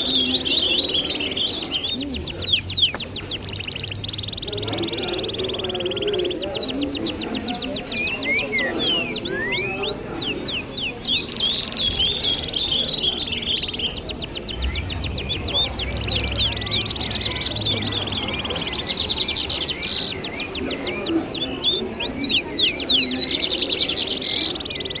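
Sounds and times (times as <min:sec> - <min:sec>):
birds chirping and trilling: 0:00.0 - 0:25.0
low rumble: 0:14.0 - 0:18.1.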